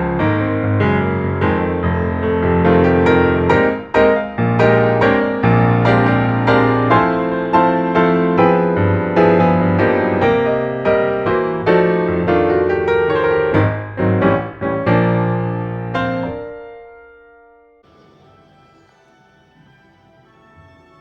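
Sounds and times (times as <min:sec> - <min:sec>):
gentle piano melody: 0:00.0 - 0:17.8.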